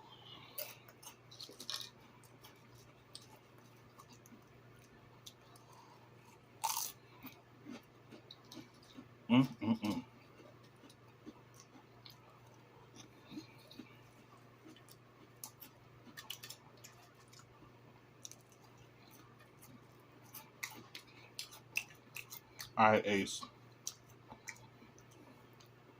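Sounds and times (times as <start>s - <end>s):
person chewing and crunching: 0.1s - 22.8s, 23.4s - 25.8s.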